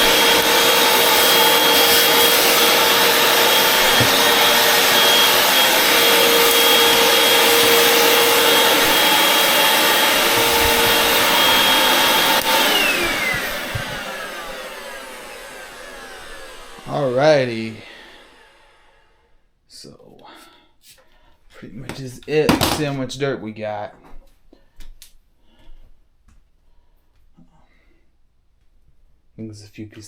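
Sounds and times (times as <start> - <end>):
vacuum cleaner motor whine: 0.0 - 19.3.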